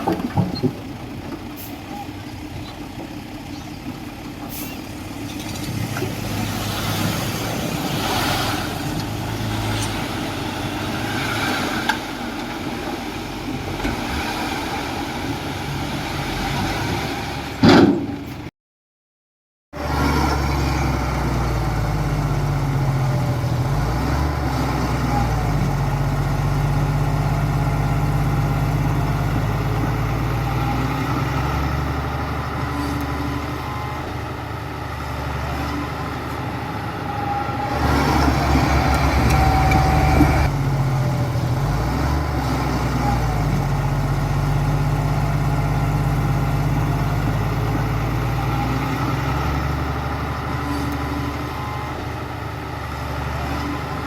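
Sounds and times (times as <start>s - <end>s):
heavy diesel engine running: 25.1s - 54.0s.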